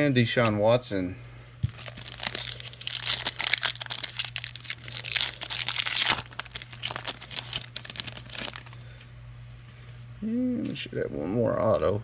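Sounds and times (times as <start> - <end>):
low electrical hum: 0.0 - 12.0
cards and plastic wrapping crinkling: 1.6 - 9.0.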